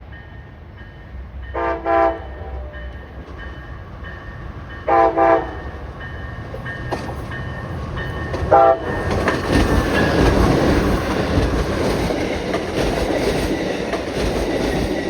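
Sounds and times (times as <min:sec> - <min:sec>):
train rumble: 0:00.0 - 0:15.0
locomotive air horn blasts: 0:01.6 - 0:02.8, 0:04.9 - 0:05.6, 0:08.5 - 0:08.9.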